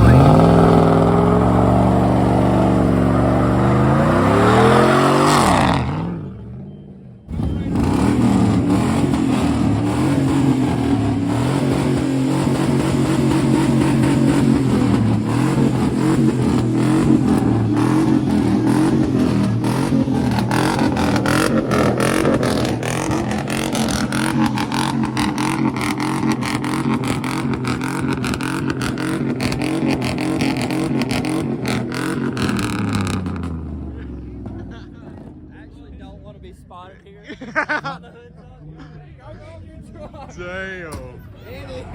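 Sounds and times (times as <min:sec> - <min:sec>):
truck engine at high revs: 0:00.0 - 0:35.9.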